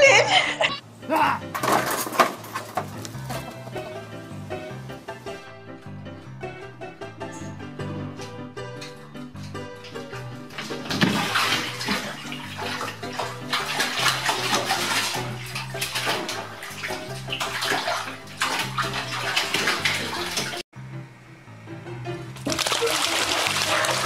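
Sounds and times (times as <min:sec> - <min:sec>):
background music: 0:00.0 - 0:24.0
cat splashing in water: 0:10.4 - 0:20.6, 0:22.4 - 0:24.0.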